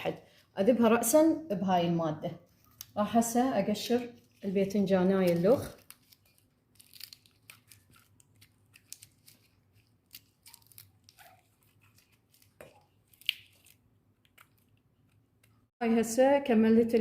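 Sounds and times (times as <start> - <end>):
eggplant being peeled by hand: 2.4 - 15.7.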